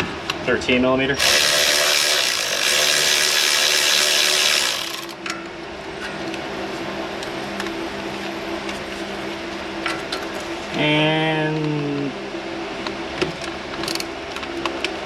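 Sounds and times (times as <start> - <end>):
power tool running on bolt: 1.2 - 5.2.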